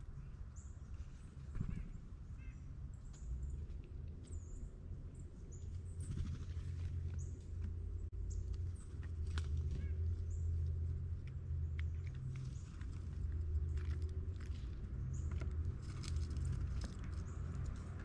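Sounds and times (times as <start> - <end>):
small birds chirping: 0.0 - 18.0
steady low rumble: 0.0 - 18.0.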